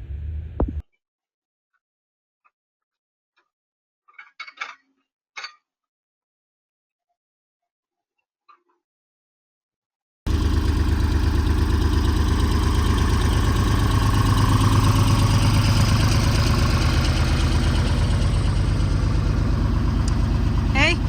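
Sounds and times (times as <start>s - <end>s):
tractor engine idling: 10.3s - 21.0s.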